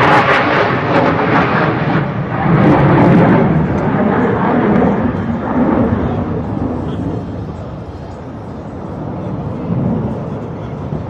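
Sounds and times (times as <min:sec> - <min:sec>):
jet aircraft roar: 0:00.0 - 0:11.0.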